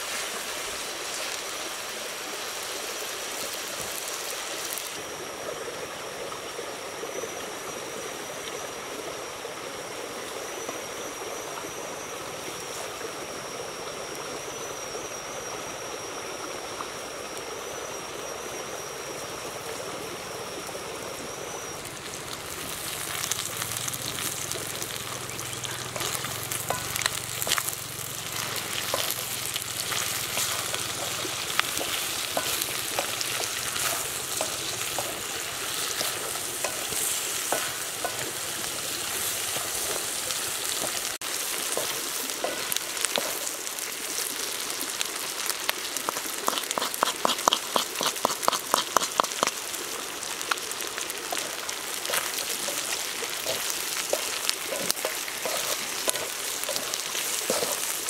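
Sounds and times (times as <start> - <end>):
chicken sizzling in oil: 0.0 - 5.2, 17.4 - 58.0
spatula scraping wok: 26.0 - 43.5, 46.1 - 49.5, 51.3 - 58.0.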